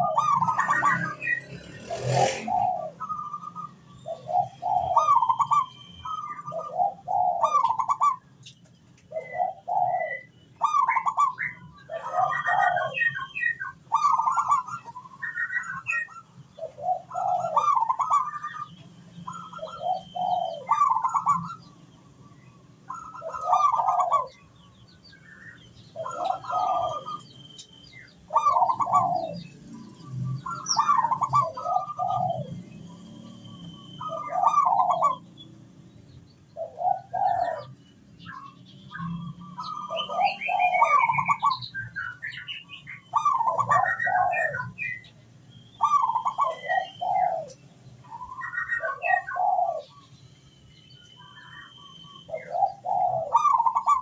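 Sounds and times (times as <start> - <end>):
dove cooing: 0.0 - 8.4, 9.1 - 21.8, 22.8 - 24.8, 25.5 - 27.4, 28.0 - 35.6, 36.6 - 45.2, 45.8 - 50.1, 51.2 - 54.0
small birds chirping: 0.0 - 54.0.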